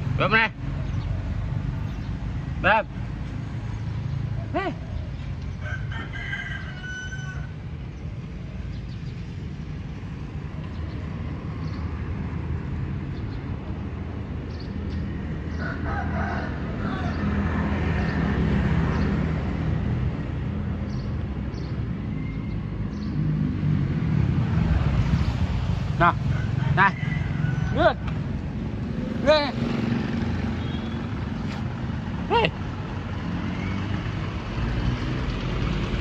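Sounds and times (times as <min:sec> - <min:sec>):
rooster crowing: 0:05.6 - 0:07.6, 0:15.5 - 0:17.4, 0:26.2 - 0:28.1.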